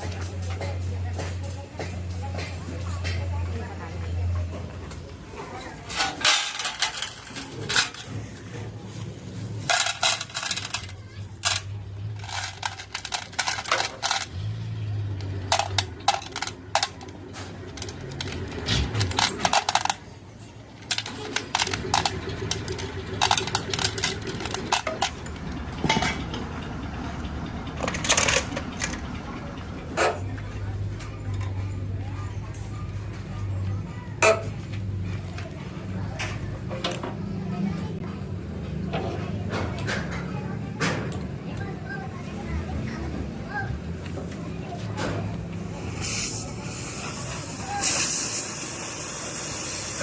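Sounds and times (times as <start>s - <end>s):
metal tools clinking against steel: 5.6s - 8.2s, 9.6s - 14.6s.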